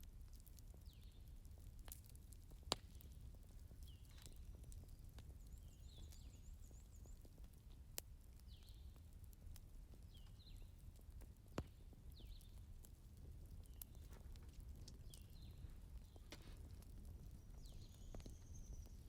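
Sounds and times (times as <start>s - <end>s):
fire popping: 0.0s - 19.0s
wood fire crackling: 0.0s - 19.0s.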